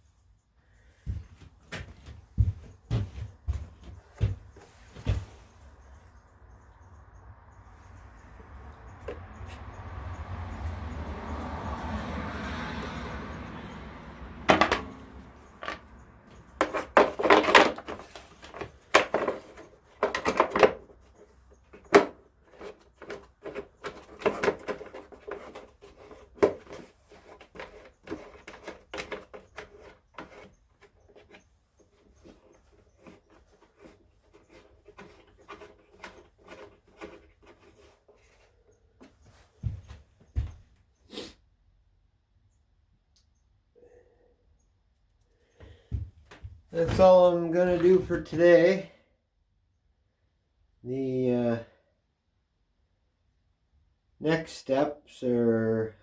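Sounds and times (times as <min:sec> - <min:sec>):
hard parts clicking and rattling: 0:13.4 - 0:38.4.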